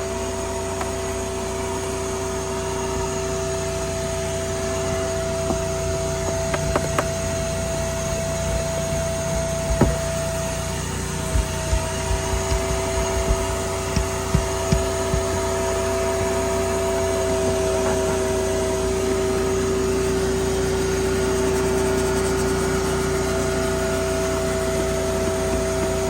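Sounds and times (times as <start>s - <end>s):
motor humming: 0.0s - 20.2s
short low knocks: 9.3s - 10.4s, 11.0s - 16.4s.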